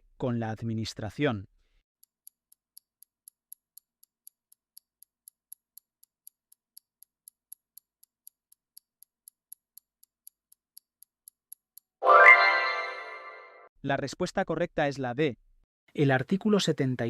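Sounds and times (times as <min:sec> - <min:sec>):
countdown timer ticking: 0:12.0 - 0:13.4.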